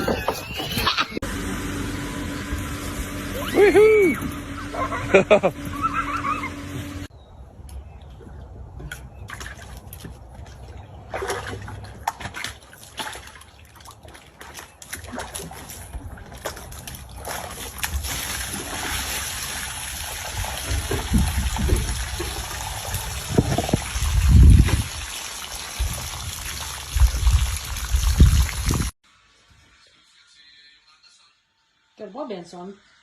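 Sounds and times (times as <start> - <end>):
water splashing and trickling: 2.5 - 29.0
rush of water: 16.4 - 29.0.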